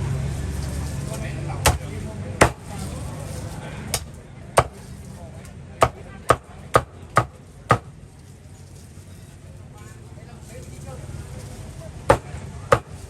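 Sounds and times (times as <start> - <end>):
cleaver chopping on block: 1.6 - 2.8, 3.9 - 4.9, 5.8 - 7.9, 12.1 - 13.0.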